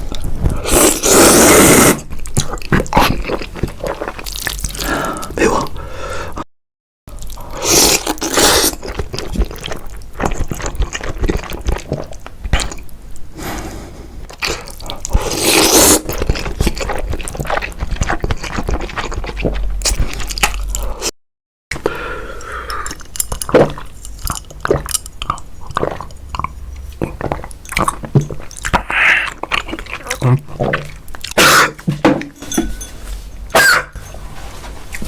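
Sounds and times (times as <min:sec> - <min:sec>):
wet eating sounds: 0:00.0 - 0:06.0, 0:07.1 - 0:13.7, 0:14.3 - 0:21.1, 0:21.7 - 0:32.0
scrapes: 0:32.3 - 0:35.0.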